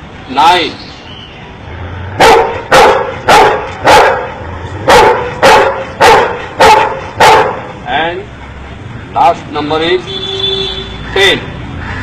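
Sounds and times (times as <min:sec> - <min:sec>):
dog barking: 0:02.2 - 0:07.7.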